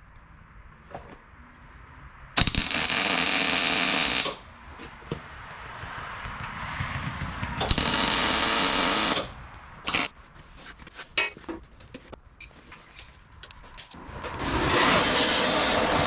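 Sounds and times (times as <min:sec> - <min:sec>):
welder crackling buzz: 0:02.4 - 0:04.5, 0:07.6 - 0:10.1, 0:14.7 - 0:16.0.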